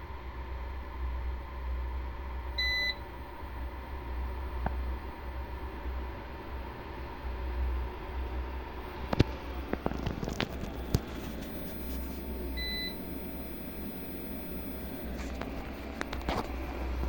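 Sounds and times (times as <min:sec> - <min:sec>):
steady low hum: 0:09.8 - 0:17.0
short electronic beep: 0:12.5 - 0:15.0.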